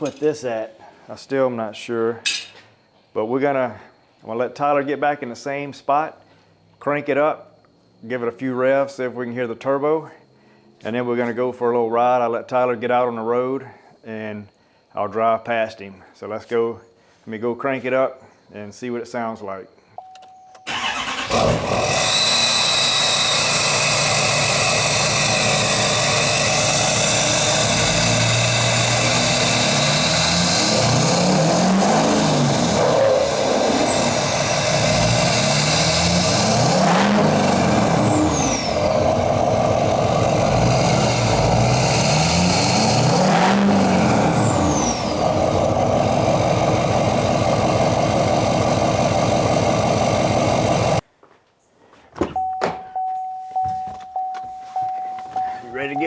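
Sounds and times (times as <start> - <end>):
diesel engine idling and revving: 20.7 - 51.0.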